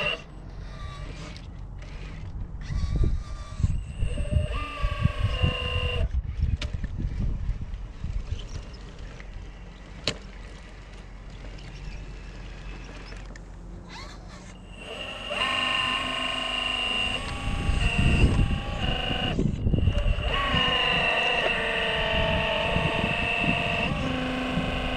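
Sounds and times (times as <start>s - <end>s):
electric motor and gears whining: 0.0s - 24.9s
wind buffeting microphone: 2.0s - 9.5s, 16.9s - 24.9s.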